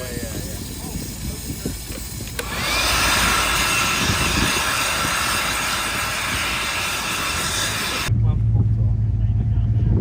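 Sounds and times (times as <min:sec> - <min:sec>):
air blower whining and rushing: 0:00.0 - 0:08.1
blower switch click: 0:02.2 - 0:03.7.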